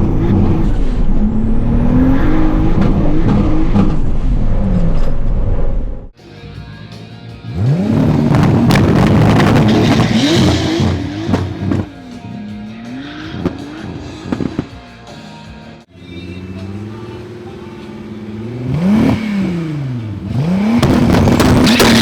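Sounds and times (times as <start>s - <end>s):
car engine revving hard: 0.0s - 5.1s, 7.5s - 12.0s, 12.9s - 14.6s, 16.1s - 22.0s
exhaust pops: 2.6s - 5.8s, 7.6s - 12.0s, 13.3s - 14.8s, 18.6s - 22.0s
music: 6.2s - 20.2s.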